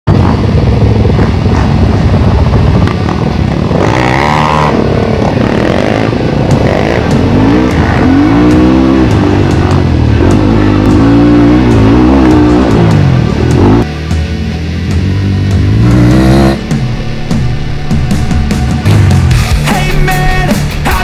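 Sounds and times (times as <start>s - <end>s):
motorcycle engine revving hard: 0.1s - 13.9s, 15.0s - 16.8s.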